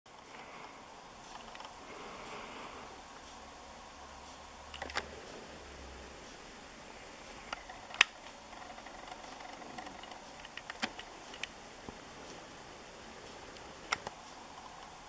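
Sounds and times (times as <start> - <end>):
faint background hiss: 0.1 - 15.0.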